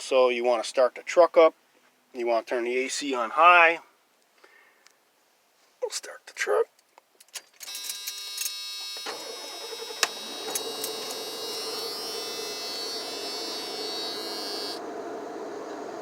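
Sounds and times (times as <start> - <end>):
electronic warning buzz: 7.7 - 14.8
van engine running: 9.1 - 16.0.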